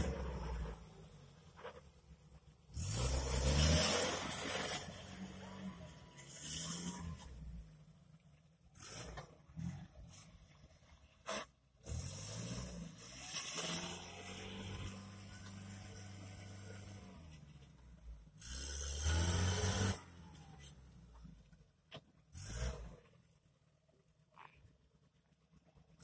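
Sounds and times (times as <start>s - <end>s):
vehicle engine running and revving: 0.0s - 1.4s, 2.7s - 7.7s, 11.8s - 17.7s, 18.4s - 21.2s.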